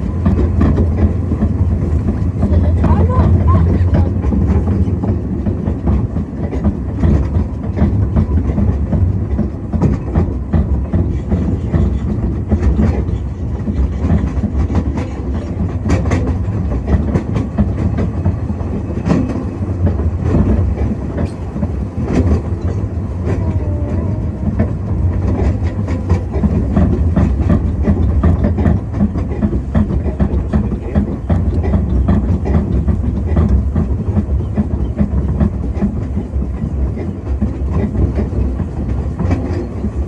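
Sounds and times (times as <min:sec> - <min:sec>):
train rumbling along track: 0:00.0 - 0:40.0
wheels clicking over rail joints: 0:00.0 - 0:40.0.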